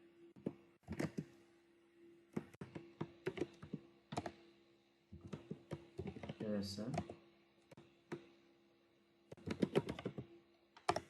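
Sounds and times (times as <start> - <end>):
keyboard typing clicks: 2.4 - 4.4, 5.2 - 7.2, 9.3 - 11.0.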